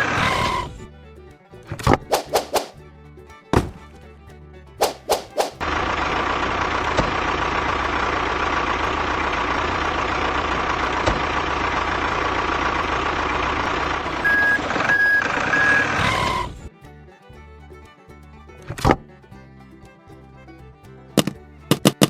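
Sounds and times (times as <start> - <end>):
truck engine running: 0.0 - 22.0
reversing alarm beeping: 14.2 - 16.4.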